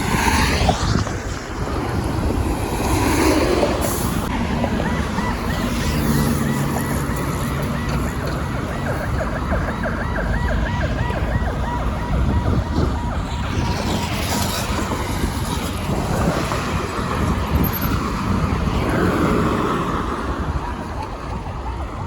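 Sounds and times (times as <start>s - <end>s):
road traffic noise: 0.0s - 22.0s
siren yelping: 4.2s - 17.8s.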